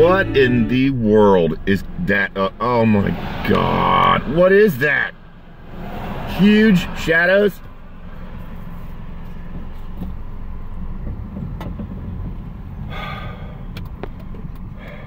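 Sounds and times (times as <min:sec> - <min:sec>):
short high-pitched sound: 0:00.0 - 0:00.9
car engine idling: 0:00.0 - 0:15.0.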